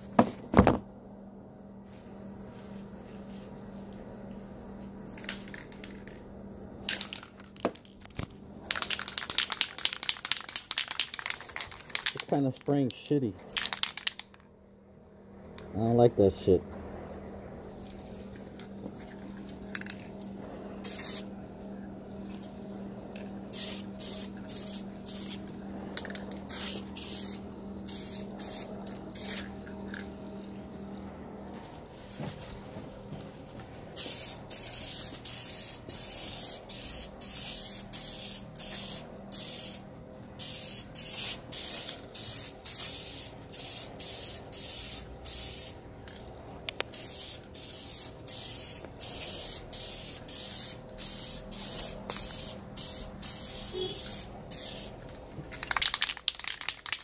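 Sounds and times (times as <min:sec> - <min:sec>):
steady low hum: 0:00.0 - 0:55.8
spray paint can hissing: 0:08.7 - 0:12.2, 0:20.8 - 0:21.3, 0:23.5 - 0:25.4, 0:26.1 - 0:29.5, 0:34.0 - 0:39.8, 0:40.4 - 0:45.8, 0:46.9 - 0:55.0.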